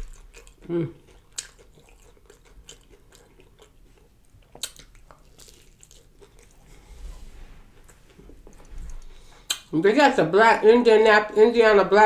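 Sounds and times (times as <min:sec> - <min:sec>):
chewing fried fish crunches: 0:00.0 - 0:06.8.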